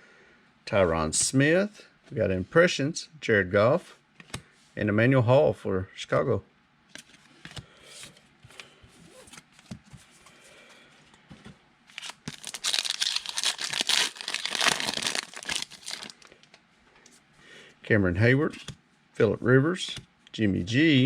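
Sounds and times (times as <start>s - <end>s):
foil pack tearing and crinkling: 11.9s - 16.5s.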